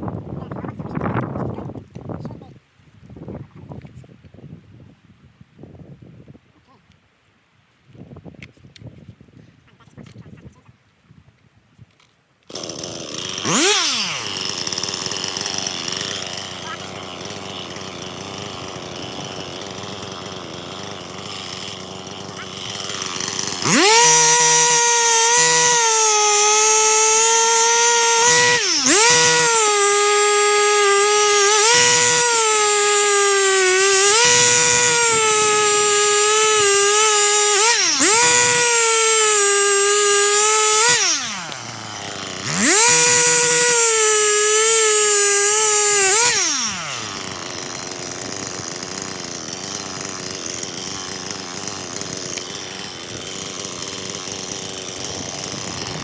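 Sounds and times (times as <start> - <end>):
chainsaw engine revving and idling: 12.5 - 56.0.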